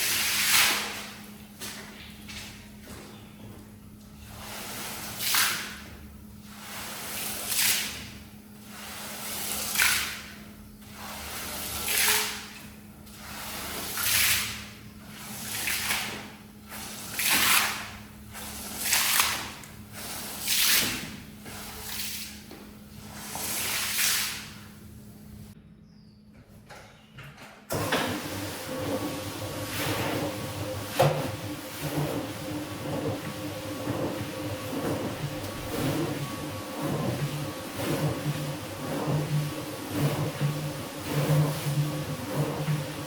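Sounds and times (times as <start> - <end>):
wet rug swishing strokes: 28.7 - 43.0.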